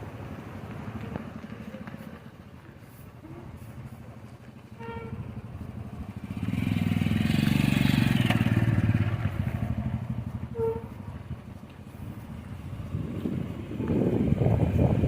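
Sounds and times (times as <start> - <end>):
motorcycle passing by: 4.6 - 15.0.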